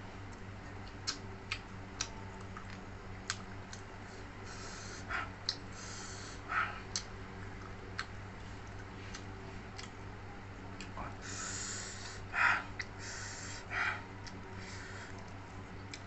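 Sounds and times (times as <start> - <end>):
steady low hum: 0.0 - 16.0
mouth clicks while eating: 0.8 - 3.9, 6.9 - 10.0
noisy nasal breathing: 4.0 - 6.9, 11.2 - 15.2.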